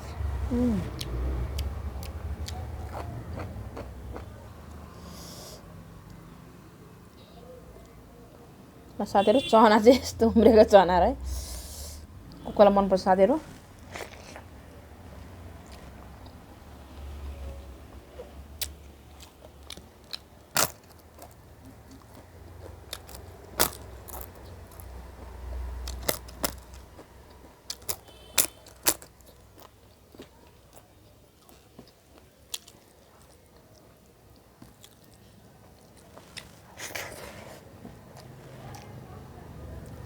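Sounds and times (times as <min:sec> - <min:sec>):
person chewing and crunching: 0:01.0 - 0:05.2, 0:13.8 - 0:14.5, 0:18.6 - 0:37.5.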